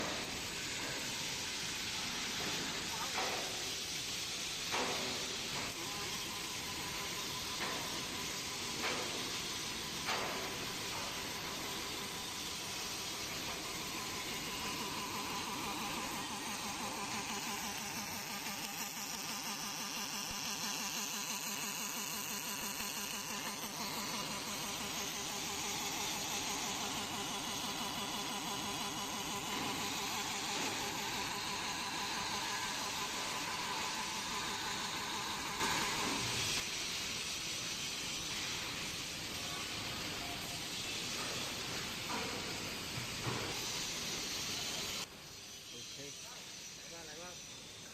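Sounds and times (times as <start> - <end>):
welding machine buzz and hiss: 0.0 - 47.9.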